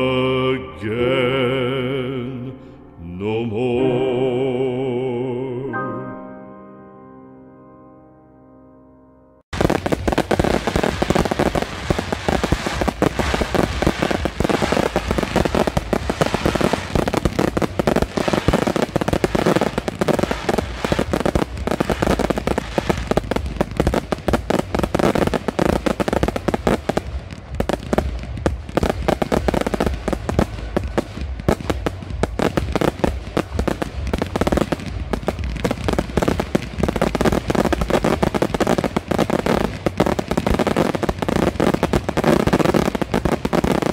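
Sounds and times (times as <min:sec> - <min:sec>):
fireworks bangs and crackling: 0:09.5 - 0:43.9.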